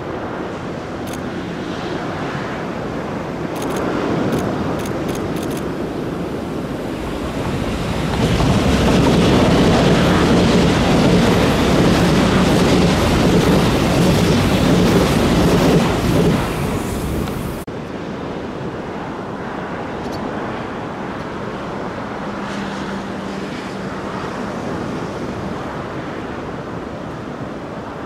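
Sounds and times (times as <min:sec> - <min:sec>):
train wheels rumbling on rail: 0:03.6 - 0:17.7.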